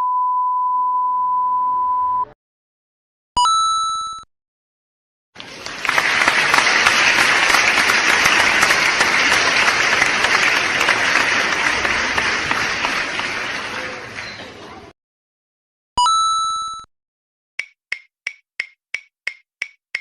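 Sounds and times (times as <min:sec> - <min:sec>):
crowd applause: 0:05.4 - 0:15.0.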